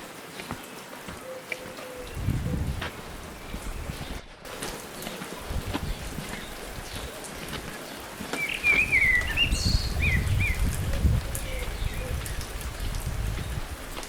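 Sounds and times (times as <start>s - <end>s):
wind rumble on microphone: 2.0s - 4.4s, 5.4s - 7.7s, 8.7s - 14.0s.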